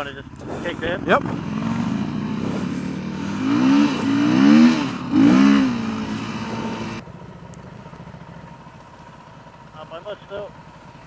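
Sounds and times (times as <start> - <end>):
rushing ride noise: 0.0 - 7.0
motorcycle engine revving: 0.0 - 11.0.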